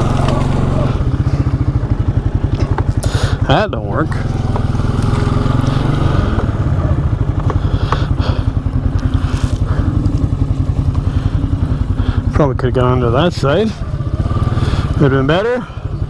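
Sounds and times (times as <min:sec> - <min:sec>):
atv engine running: 0:00.0 - 0:16.0
knocks and clatters: 0:02.4 - 0:03.0.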